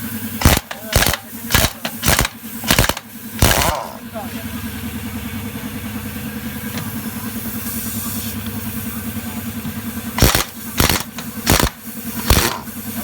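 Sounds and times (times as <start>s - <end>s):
pneumatic impact wrench bursts: 0.0s - 4.0s, 10.2s - 13.0s
compressor engine running: 0.0s - 13.0s.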